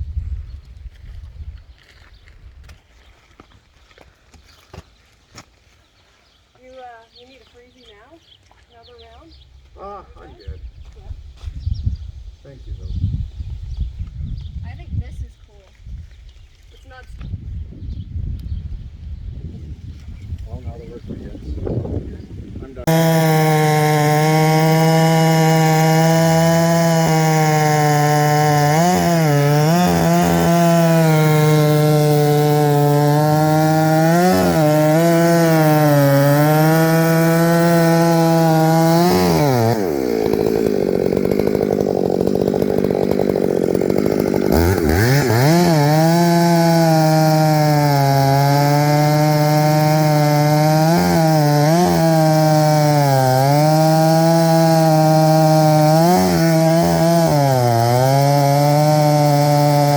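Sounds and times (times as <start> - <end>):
chainsaw cutting wood: 22.8 - 59.9
chainsaw idling: 22.9 - 59.9.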